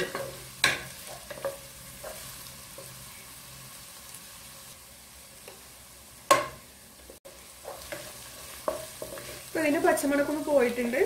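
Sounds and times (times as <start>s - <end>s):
vegetables sizzling in hot oil: 0.0s - 11.0s
wooden spatula stirring in pan: 6.3s - 10.9s.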